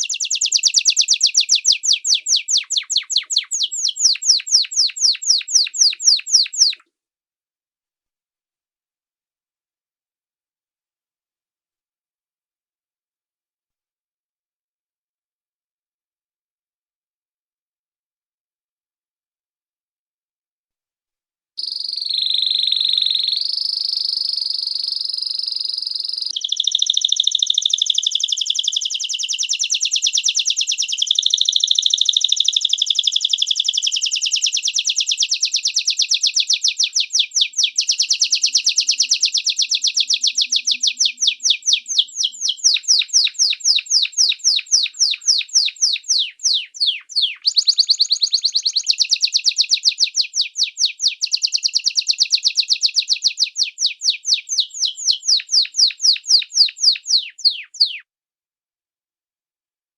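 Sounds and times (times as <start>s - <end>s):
songbird trilling: 0.0s - 6.8s, 21.6s - 58.0s.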